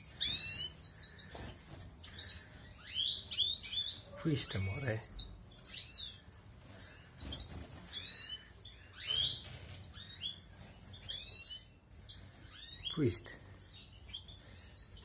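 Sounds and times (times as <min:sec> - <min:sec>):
goldfinches chirping: 0:02.0 - 0:15.0.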